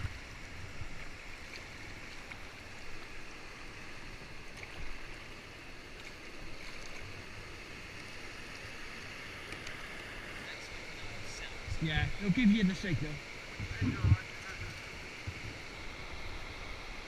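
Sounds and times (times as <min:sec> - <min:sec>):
wind rumble on microphone: 0:13.6 - 0:16.7.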